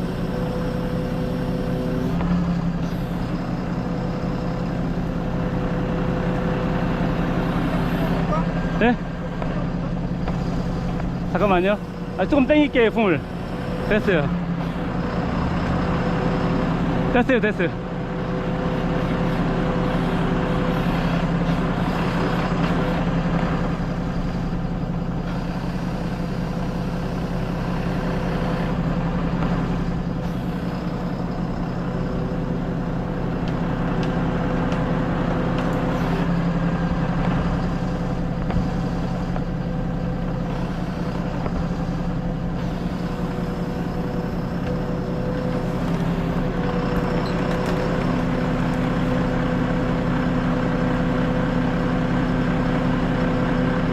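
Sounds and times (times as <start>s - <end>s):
heavy truck engine running: 0.0s - 53.9s.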